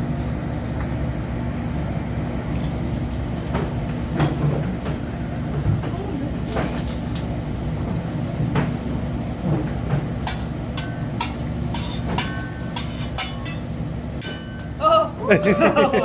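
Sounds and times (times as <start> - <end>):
low rumble of grill: 0.0 - 16.0
spatula clinking on steel griddle: 10.2 - 14.8.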